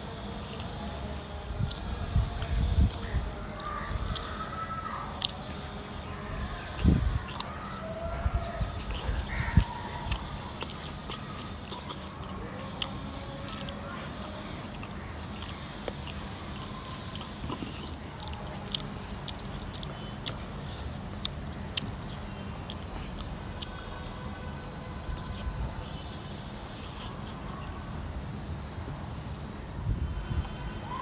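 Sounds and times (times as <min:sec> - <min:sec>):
close chewing and biting food: 0:00.0 - 0:31.0
steady low hum: 0:00.0 - 0:31.0
small crunches: 0:00.2 - 0:28.0
wet mouth clicks: 0:00.4 - 0:04.4.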